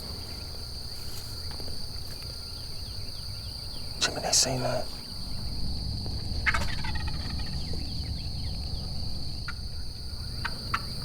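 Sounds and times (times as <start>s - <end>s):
high insect trill: 0.0s - 11.0s
turkey gobbling: 6.4s - 9.7s.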